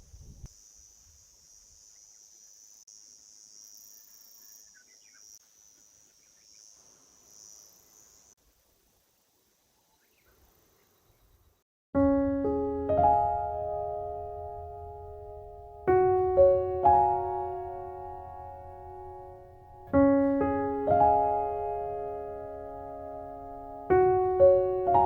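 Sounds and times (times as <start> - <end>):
night insects chirring: 0.0 - 11.6.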